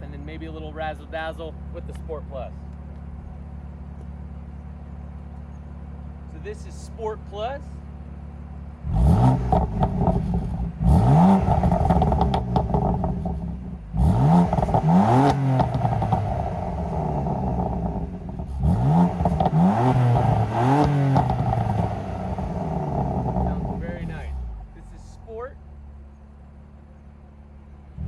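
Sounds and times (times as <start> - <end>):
exhaust crackles and gurgles: 0.0 - 28.0
car engine revving: 8.2 - 28.0.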